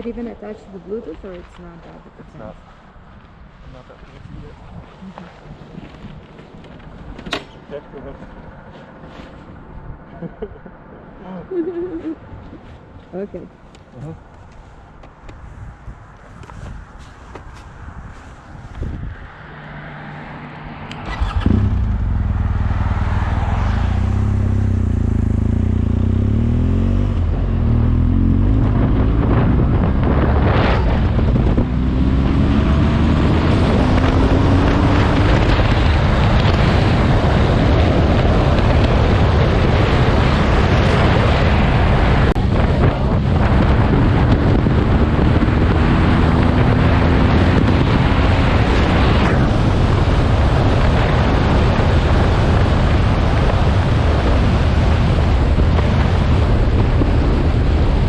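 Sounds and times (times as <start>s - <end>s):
wind on microphone: 15.2s - 19.5s, 21.0s - 58.0s
motorcycle engine accelerating: 20.2s - 58.0s.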